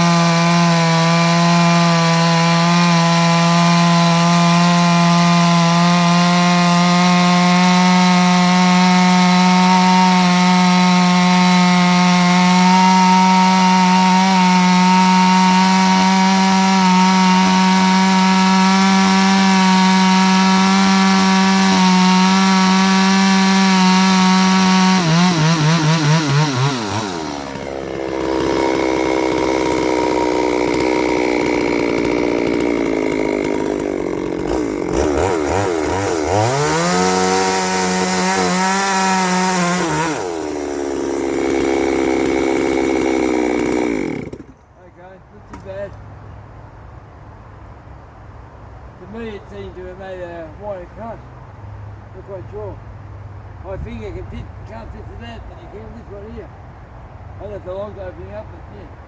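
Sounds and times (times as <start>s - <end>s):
chainsaw cutting log: 0.0s - 44.8s, 45.4s - 46.0s.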